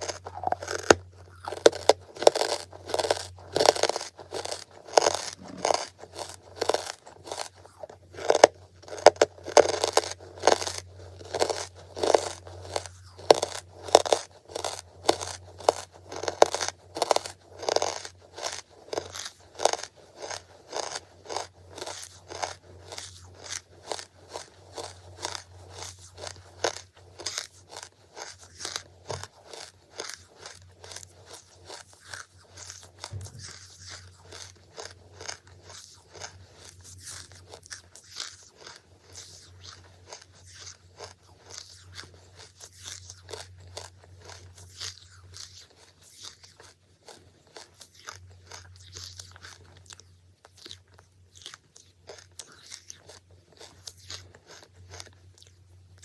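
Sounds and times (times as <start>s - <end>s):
charcoal being chewed: 0.0s - 56.0s
steady low hum: 32.7s - 34.3s.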